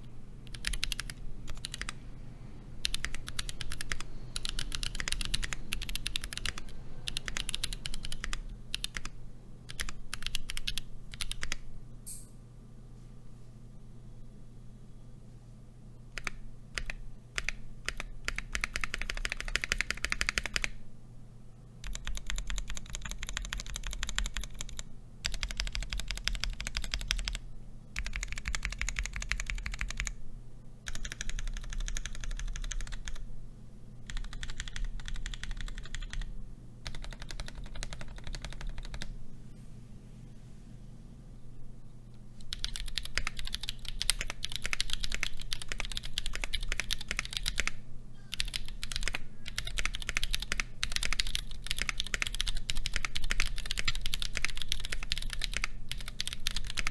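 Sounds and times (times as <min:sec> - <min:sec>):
fast typing on mechanical keyboard: 0:00.0 - 0:02.0, 0:02.8 - 0:11.6, 0:16.2 - 0:20.8, 0:21.8 - 0:27.4, 0:28.0 - 0:30.2, 0:30.9 - 0:33.2, 0:34.0 - 0:39.1, 0:42.4 - 0:56.9.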